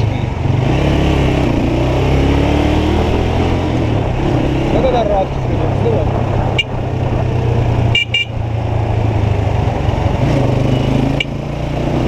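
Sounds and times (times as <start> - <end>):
motorcycle engine running: 0.0 - 12.0
traffic noise: 0.0 - 12.0
wind rushing: 2.1 - 10.2.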